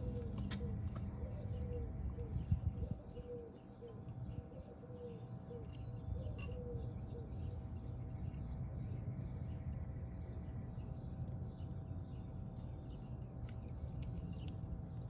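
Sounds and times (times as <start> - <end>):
steady low rumble: 0.0 - 3.6, 6.9 - 15.0.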